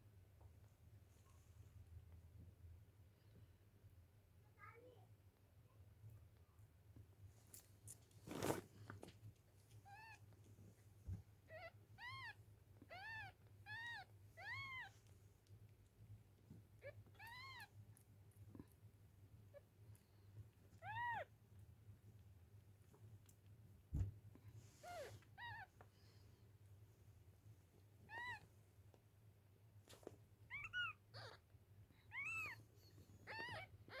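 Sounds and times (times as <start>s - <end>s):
rustling noise: 7.4s - 9.8s.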